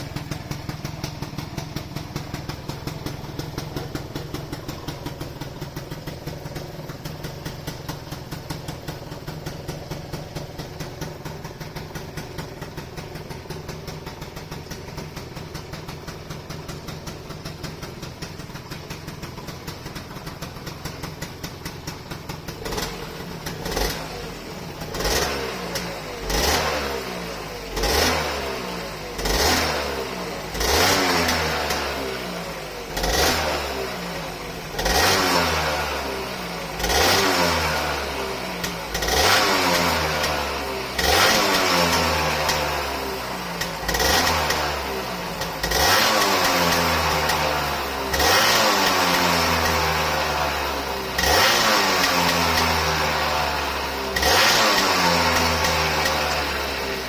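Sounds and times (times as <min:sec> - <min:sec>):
scooter engine idling: 0:00.0 - 0:57.0
engine revving in blips: 0:23.6 - 0:24.2, 0:24.9 - 0:27.1, 0:27.7 - 0:28.6, 0:29.2 - 0:32.0, 0:33.0 - 0:33.9, 0:34.8 - 0:36.0, 0:36.8 - 0:42.9, 0:43.5 - 0:56.9.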